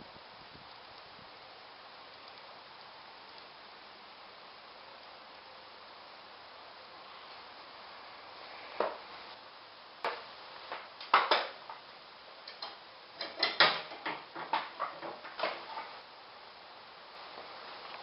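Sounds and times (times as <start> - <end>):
hand tools clanking on metal: 12.4 - 15.9.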